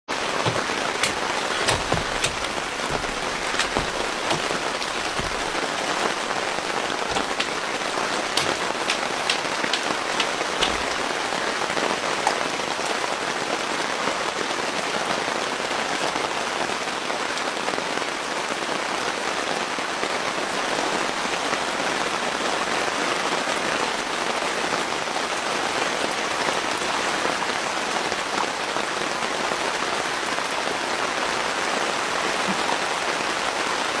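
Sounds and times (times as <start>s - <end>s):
sharp raindrop impacts: 0.1s - 12.6s
steady rain hissing: 0.1s - 34.0s.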